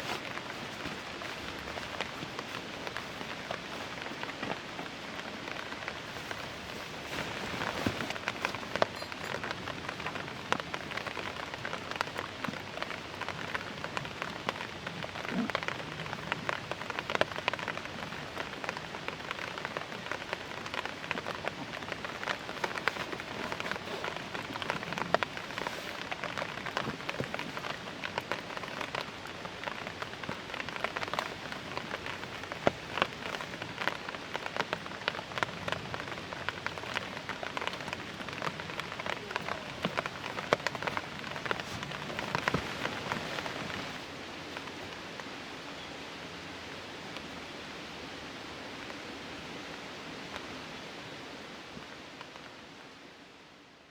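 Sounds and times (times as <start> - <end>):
drops tapping on a tarp: 0.0 - 45.3
rain falling: 0.0 - 53.9.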